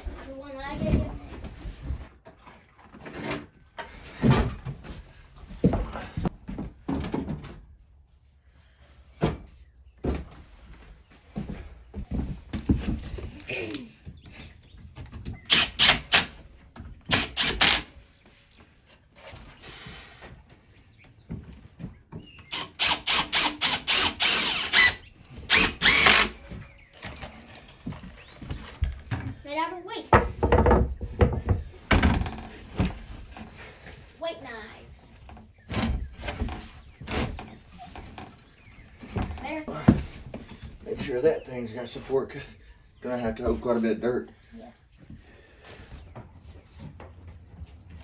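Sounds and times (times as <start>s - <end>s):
dull knocks and thumps: 9.2s - 10.6s, 11.3s - 13.4s, 26.1s - 33.8s, 35.2s - 41.2s
power drill motor whine: 22.6s - 26.4s.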